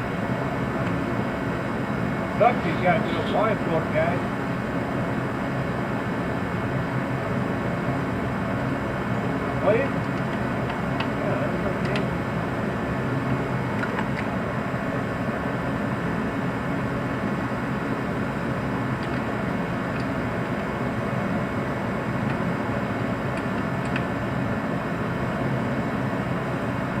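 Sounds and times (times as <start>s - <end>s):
mechanical hum: 0.0s - 27.0s.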